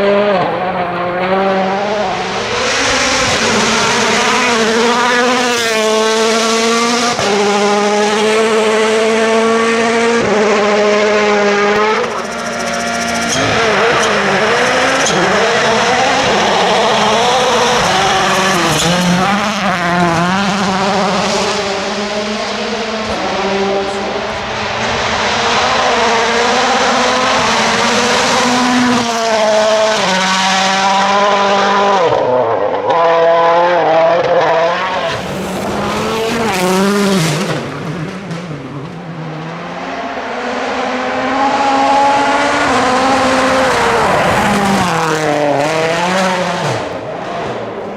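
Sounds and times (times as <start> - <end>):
rally car engines revving: 0.0 - 47.9
tyre noise on road: 33.0 - 47.9.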